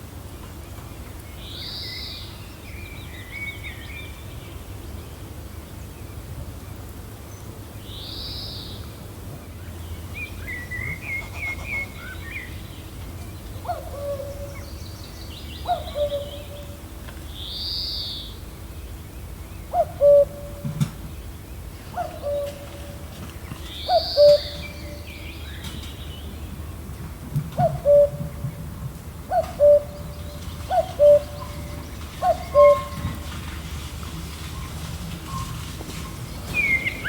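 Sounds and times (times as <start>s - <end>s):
birds calling: 10.0s - 16.9s, 21.0s - 26.8s, 27.5s - 37.0s
wind rumble: 24.4s - 37.0s.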